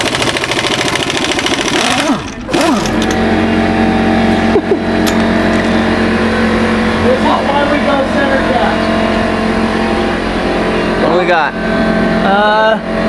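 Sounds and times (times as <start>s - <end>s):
impact wrench rattling: 0.0s - 3.3s, 5.0s - 5.8s
air compressor humming: 0.0s - 13.0s.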